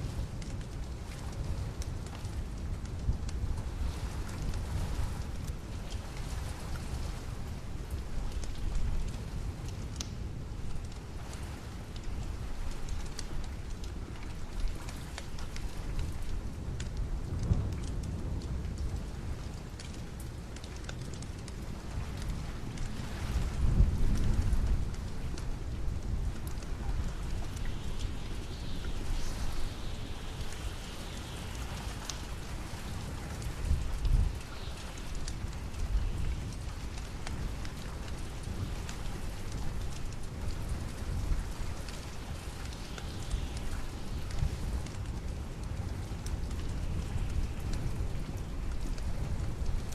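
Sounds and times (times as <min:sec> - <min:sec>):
steady rain: 0:00.0 - 0:49.9
wood fire crackling: 0:00.0 - 0:49.9.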